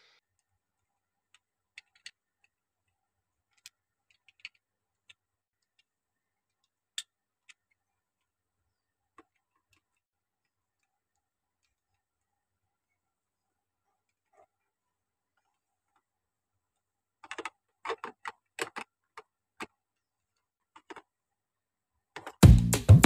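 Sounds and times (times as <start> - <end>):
plastic bricks clicking together: 1.3 - 2.6, 3.5 - 5.2, 17.2 - 19.7.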